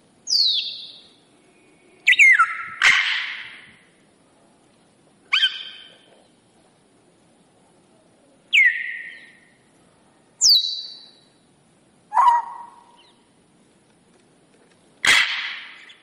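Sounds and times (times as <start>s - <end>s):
bird whistles dropping in pitch: 0.3s - 1.0s, 2.0s - 2.8s, 5.3s - 5.9s, 8.5s - 9.4s, 10.4s - 11.2s
harsh bird squawk: 2.0s - 3.7s, 5.3s - 6.1s, 12.1s - 13.2s, 15.0s - 16.0s.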